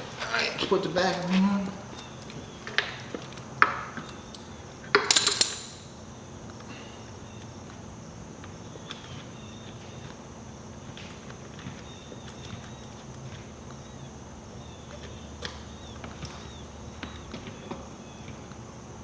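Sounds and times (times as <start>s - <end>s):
metal parts clinking: 4.9s - 6.0s
metallic clatter: 5.0s - 6.0s.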